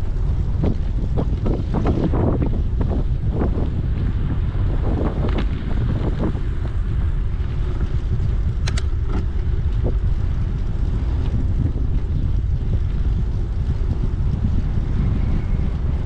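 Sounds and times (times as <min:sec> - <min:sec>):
wind buffeting microphone: 0:00.0 - 0:16.0
short clicks or rattles: 0:08.6 - 0:09.3.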